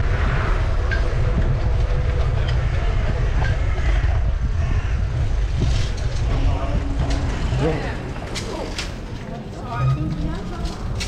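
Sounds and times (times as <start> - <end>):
wind rumble on microphone: 0.0 - 11.0
bicycle rattles and clicks: 5.0 - 11.0.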